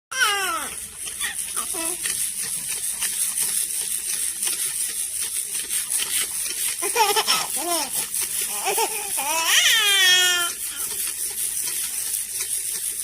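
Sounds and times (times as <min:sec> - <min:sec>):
infant cooing and squealing: 0:00.1 - 0:02.0, 0:06.8 - 0:10.8.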